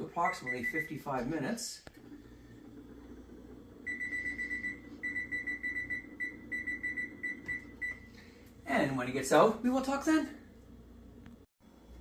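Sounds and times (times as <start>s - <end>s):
oven timer beeping: 0.2s - 0.9s, 2.4s - 8.2s.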